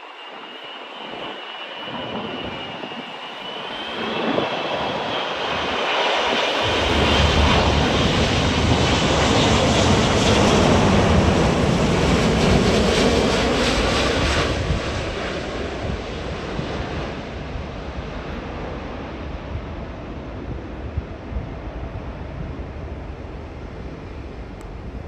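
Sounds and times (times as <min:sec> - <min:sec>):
jet airliner passing: 0:00.0 - 0:24.6
deep rumble: 0:06.6 - 0:15.0.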